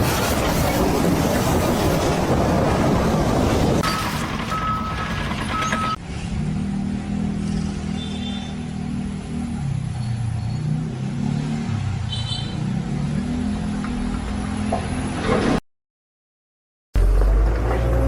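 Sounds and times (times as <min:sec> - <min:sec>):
engine revving: 0:04.6 - 0:15.6, 0:17.0 - 0:18.0.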